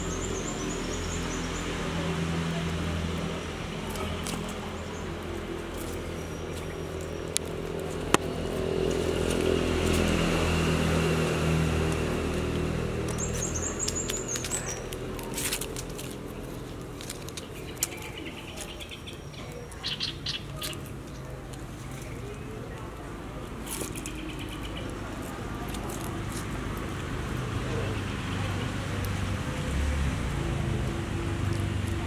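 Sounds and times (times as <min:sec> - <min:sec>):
birds chirping: 0:00.0 - 0:23.2, 0:23.9 - 0:25.3.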